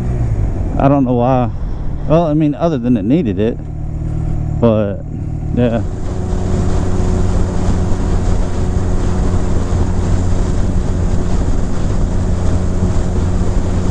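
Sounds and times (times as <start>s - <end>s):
motorcycle engine cruising: 0.0s - 13.9s
wind rushing over microphone: 0.0s - 13.9s.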